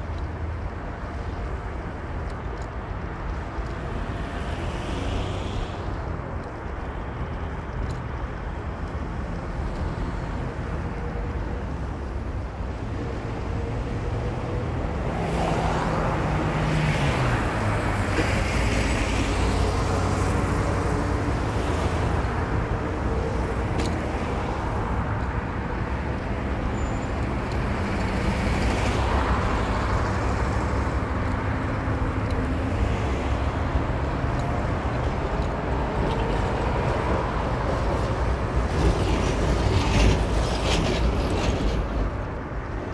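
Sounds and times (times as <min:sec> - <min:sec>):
car engine and road rumble: 0:00.0 - 0:42.9
passing traffic: 0:00.0 - 0:42.9.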